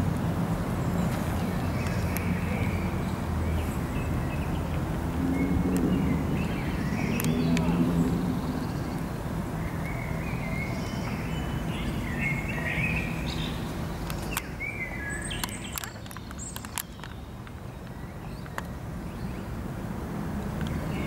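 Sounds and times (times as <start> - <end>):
small birds chirping: 0.7 - 19.7
sharp clicks: 15.3 - 18.7.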